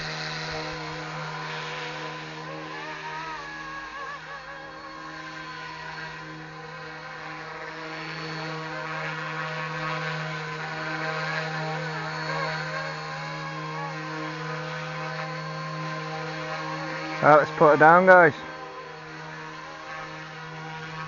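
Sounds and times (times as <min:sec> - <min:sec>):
model helicopter whine: 0:00.0 - 0:21.0.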